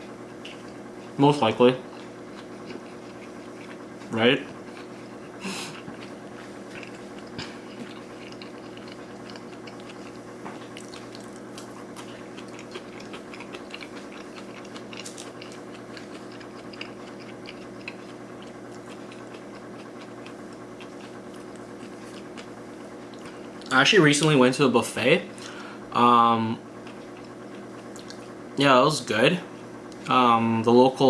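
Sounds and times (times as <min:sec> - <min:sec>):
steady low hum: 0:00.0 - 0:31.0
chewing wet mouth clicks: 0:05.0 - 0:23.7, 0:26.8 - 0:28.3.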